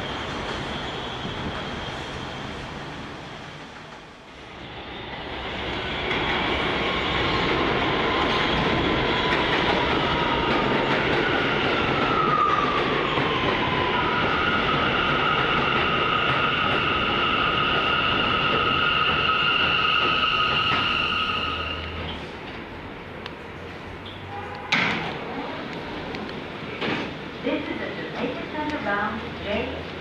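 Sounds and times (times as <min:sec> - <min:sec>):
subway train rumbling on rails: 0:00.0 - 0:30.0.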